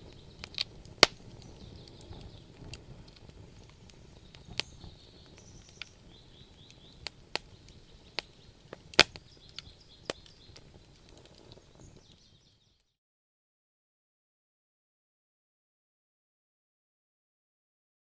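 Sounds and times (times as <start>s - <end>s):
hiss of burning logs: 0.0s - 12.7s
fire popping: 0.0s - 12.8s.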